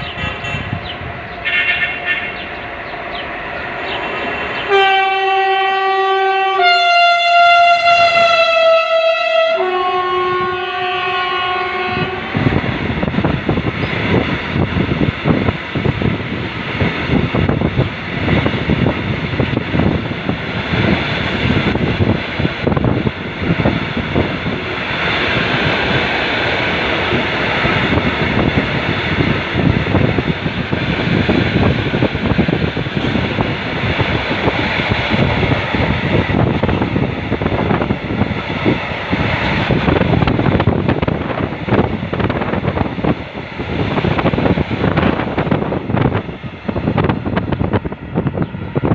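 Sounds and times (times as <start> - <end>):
train horn: 0.0 - 0.8, 1.4 - 2.6, 4.7 - 12.5.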